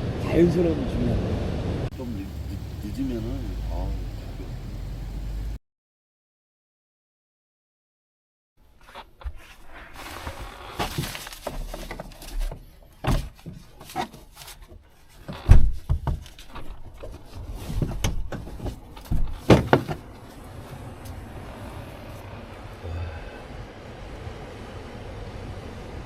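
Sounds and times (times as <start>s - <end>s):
objects knocking and thumping: 15.5s - 20.1s.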